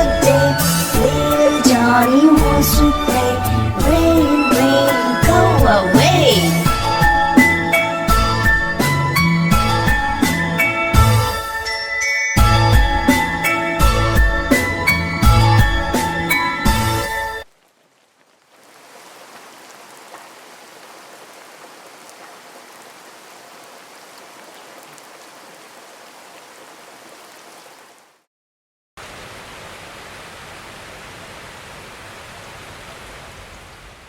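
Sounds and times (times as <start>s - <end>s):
rain hissing: 0.0s - 7.7s, 14.5s - 28.2s, 29.0s - 34.0s.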